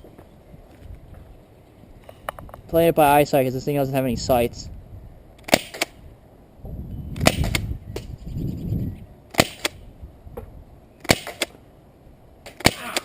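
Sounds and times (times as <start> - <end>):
airsoft shotgun pops: 10.4 - 11.6.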